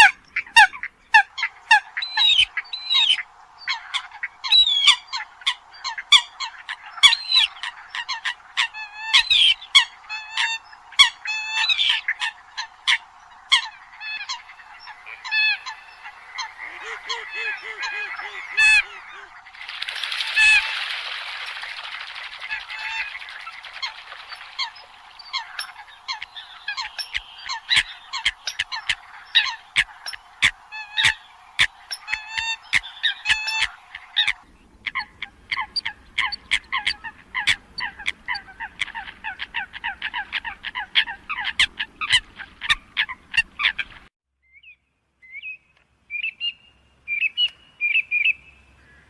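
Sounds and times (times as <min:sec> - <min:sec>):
coot calling: 0:00.0 - 0:20.8, 0:21.8 - 0:44.0.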